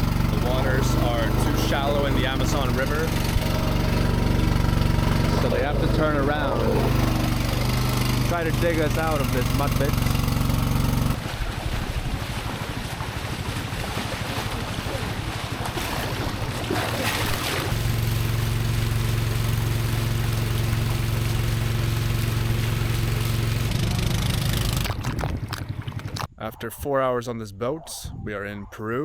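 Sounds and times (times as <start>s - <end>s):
boat motor running: 0.0s - 26.3s
rushing water: 0.0s - 26.3s
wind noise: 24.8s - 26.3s.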